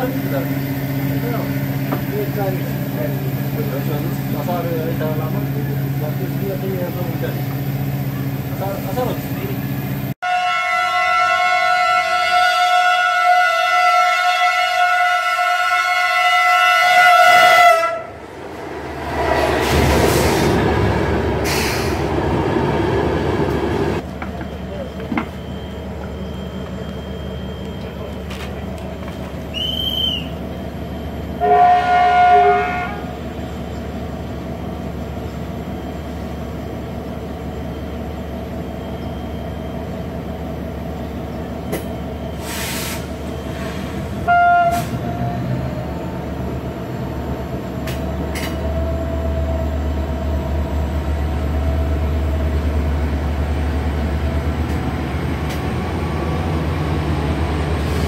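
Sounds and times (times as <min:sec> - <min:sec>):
low train rumble: 0:00.0 - 0:58.0
train horn blasts: 0:10.2 - 0:18.2, 0:31.4 - 0:33.1, 0:44.2 - 0:45.2
high whistle: 0:29.5 - 0:30.4.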